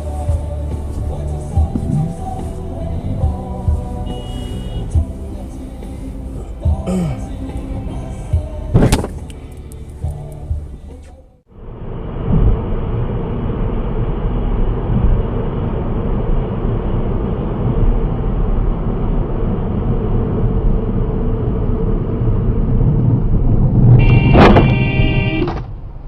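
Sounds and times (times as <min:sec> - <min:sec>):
car engine and road noise: 0:00.0 - 0:26.0
car horn: 0:03.8 - 0:05.2, 0:24.0 - 0:25.6.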